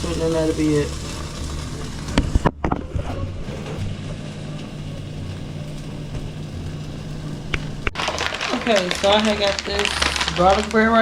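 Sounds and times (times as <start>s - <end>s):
chicken sizzling in a pan: 0.0s - 2.5s
low hum: 0.8s - 8.4s.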